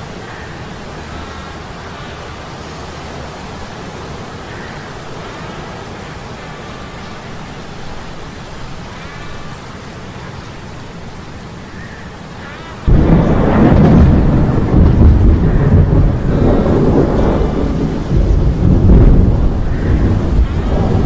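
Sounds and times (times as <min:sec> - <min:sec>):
storm rain hissing: 0:00.0 - 0:21.0
thunder clap rumbling: 0:12.8 - 0:21.0.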